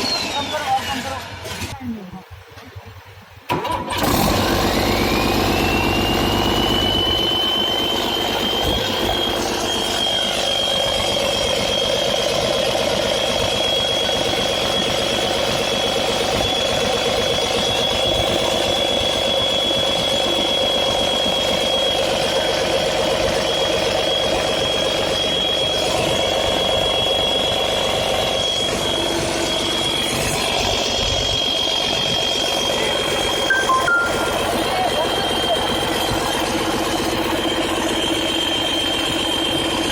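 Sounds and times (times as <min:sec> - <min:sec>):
diesel engine running: 0:00.0 - 0:39.9
high whine climbing in pitch: 0:28.7 - 0:35.9.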